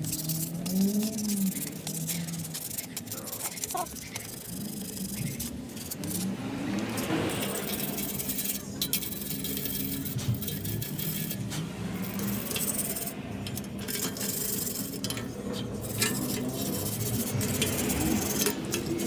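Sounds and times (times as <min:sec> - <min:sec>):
small metal clinks and scraping: 0:00.0 - 0:19.0.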